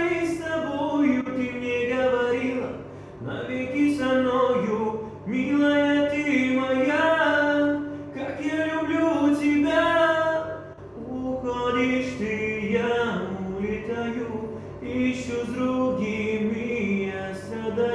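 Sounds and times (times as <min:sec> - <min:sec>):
man singing slow melody: 0:00.0 - 0:17.9.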